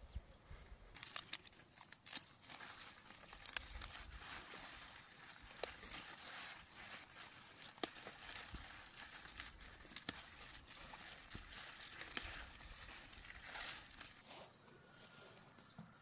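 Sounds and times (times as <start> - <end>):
faint rustling and handling: 0.9 - 16.0.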